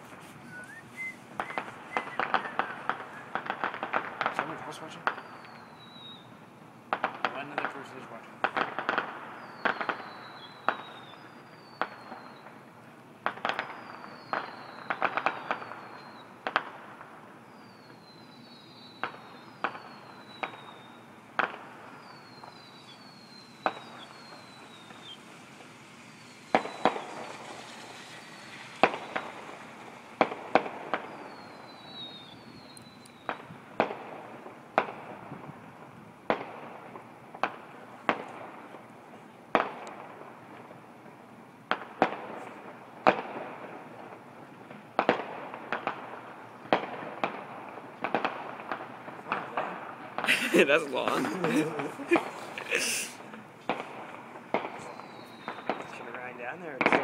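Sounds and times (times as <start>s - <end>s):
fireworks bangs: 0.0s - 57.0s
whistles falling in pitch: 0.4s - 3.4s, 22.0s - 25.2s.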